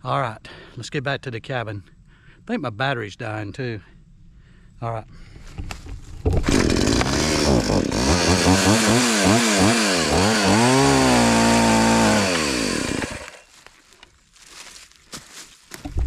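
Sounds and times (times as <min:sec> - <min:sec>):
chainsaw running: 0:06.2 - 0:13.6.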